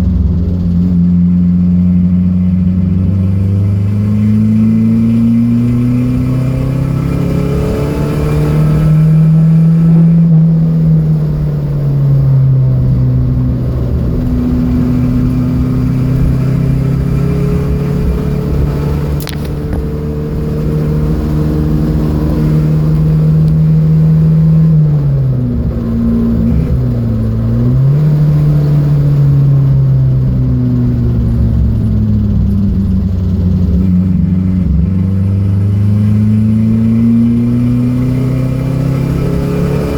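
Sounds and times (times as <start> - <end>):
car engine pulling hard: 0.0 - 39.9
sharp click: 19.2 - 19.9.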